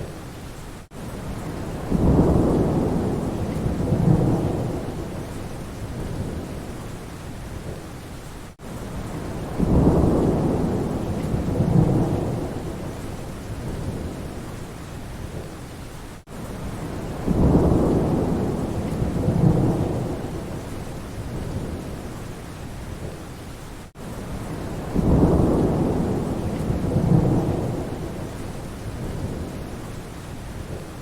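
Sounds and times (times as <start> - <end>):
steady rain: 0.0 - 31.0
thunder rumbling: 1.3 - 6.8, 9.0 - 14.4, 16.6 - 22.1, 24.3 - 30.0.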